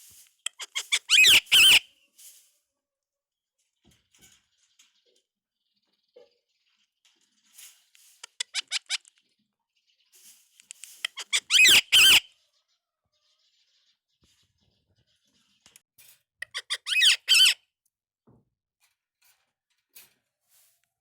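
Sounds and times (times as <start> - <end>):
parakeet chirping and calling: 0.5 - 1.8, 8.2 - 9.1, 11.0 - 12.3, 16.4 - 17.6.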